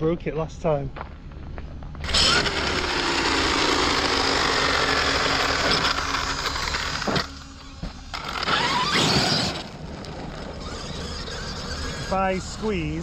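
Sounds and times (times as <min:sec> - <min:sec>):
tyres on loose ground: 0:00.0 - 0:13.0
rc car motor whine: 0:02.0 - 0:13.0.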